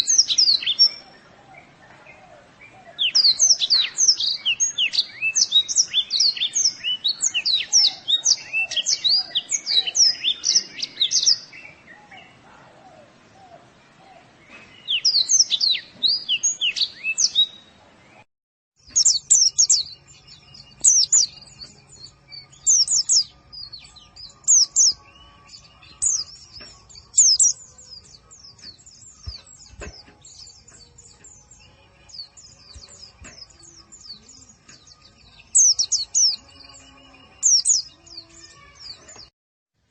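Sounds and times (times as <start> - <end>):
bird twittering chirps: 18.8 - 39.3.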